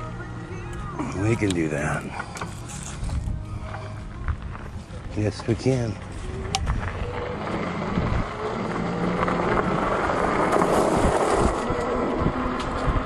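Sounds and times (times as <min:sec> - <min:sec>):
wind buffeting microphone: 0:02.9 - 0:13.0.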